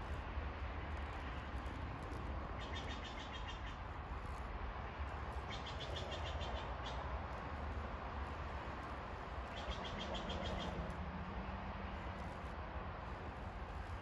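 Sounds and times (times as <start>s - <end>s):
bird chirping trill: 2.6s - 3.8s, 5.4s - 7.1s, 9.4s - 10.8s.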